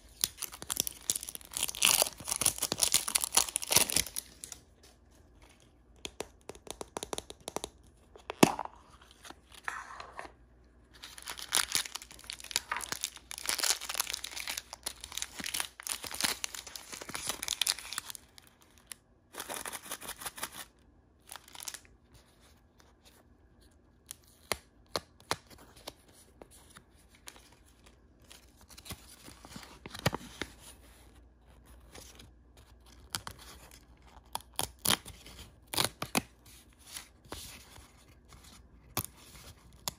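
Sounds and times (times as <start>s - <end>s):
packaging tearing and rustling: 0.1s - 4.6s, 11.0s - 18.3s.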